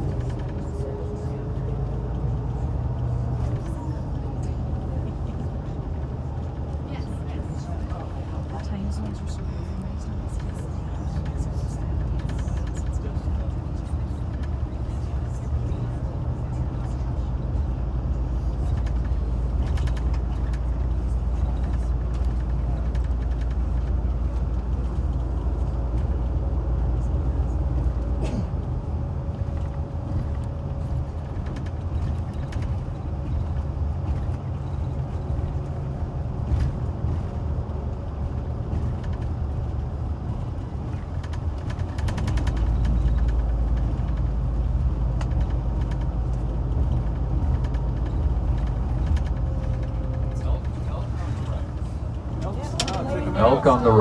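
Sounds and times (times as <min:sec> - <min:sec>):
engine and road rumble: 0:00.0 - 0:54.0
coach body creaks and rattles: 0:27.7 - 0:53.1.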